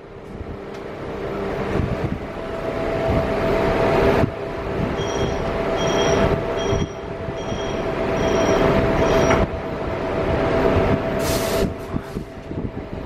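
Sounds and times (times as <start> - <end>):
train electrical hum: 0.0 - 13.0
wind on microphone: 1.5 - 13.0
two-tone warning beep: 5.0 - 9.4
air release hiss: 11.2 - 11.8.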